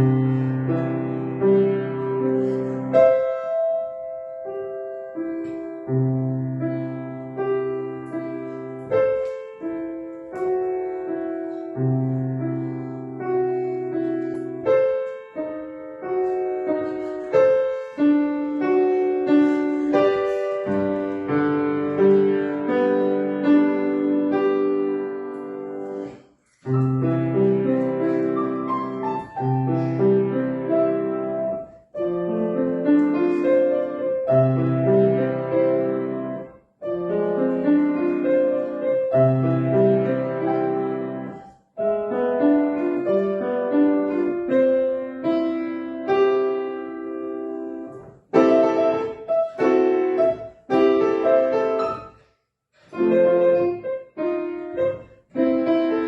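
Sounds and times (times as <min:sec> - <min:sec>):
gentle solo piano piece: 0:00.0 - 0:56.0.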